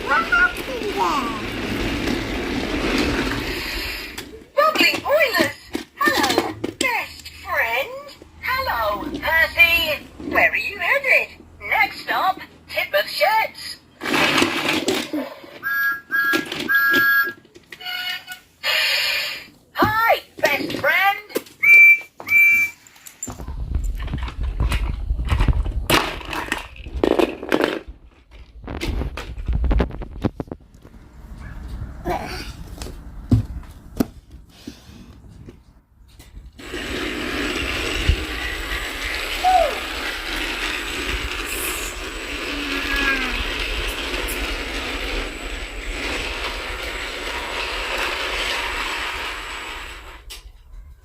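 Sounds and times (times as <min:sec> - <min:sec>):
toy trains clattering on track: 0:00.0 - 0:08.2, 0:14.0 - 0:18.8, 0:36.2 - 0:50.5.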